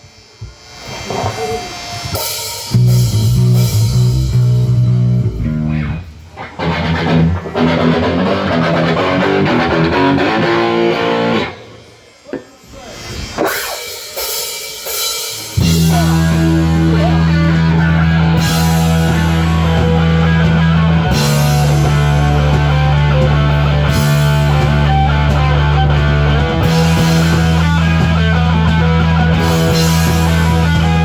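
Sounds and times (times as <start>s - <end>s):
rock band playing live: 1.0s - 12.0s, 13.2s - 31.0s
heavy low bass notes: 2.7s - 11.5s, 15.6s - 31.0s.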